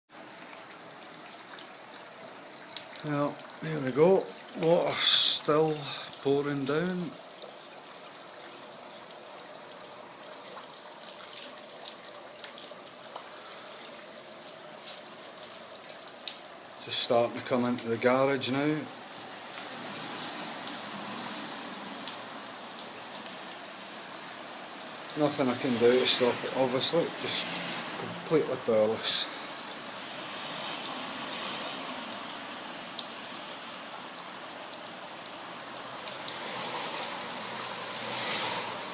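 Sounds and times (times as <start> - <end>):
floodwater rushing: 0.2 - 38.9
drips ticking: 0.3 - 30.8.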